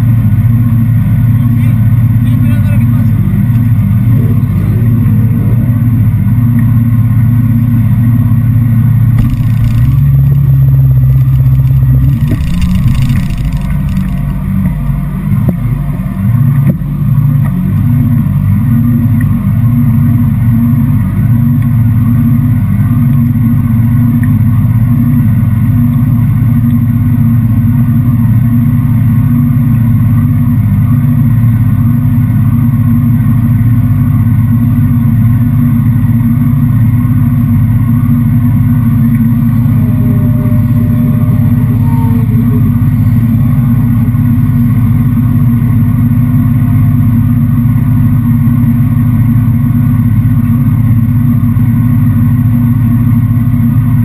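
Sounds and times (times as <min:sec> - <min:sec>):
motorcycle engine idling: 0:07.2 - 0:18.0.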